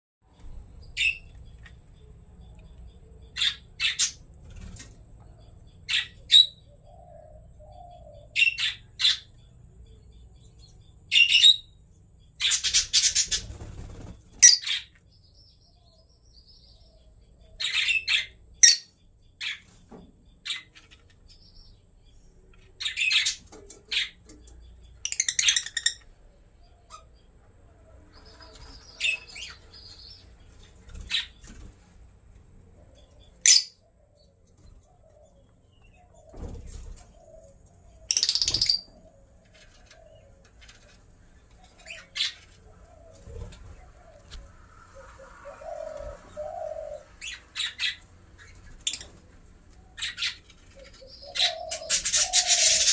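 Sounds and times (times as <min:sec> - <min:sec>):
birds squawking and chirping: 0:00.4 - 0:52.9.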